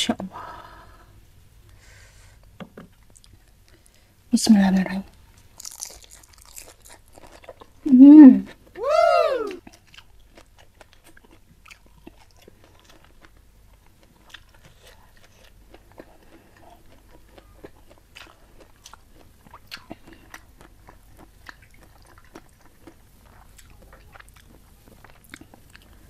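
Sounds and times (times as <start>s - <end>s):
person chewing food: 5.4s - 7.9s, 8.5s - 26.0s.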